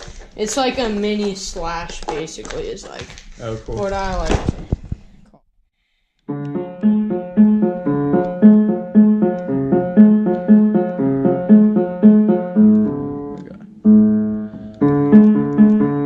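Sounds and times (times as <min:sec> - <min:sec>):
out of tune piano notes: 0:06.3 - 0:16.0.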